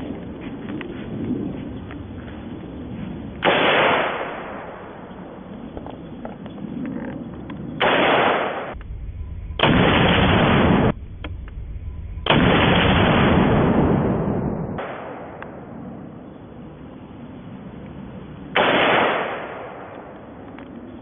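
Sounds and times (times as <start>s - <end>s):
rifle shots with rumble: 3.4s - 5.2s, 7.8s - 15.9s, 18.5s - 20.4s.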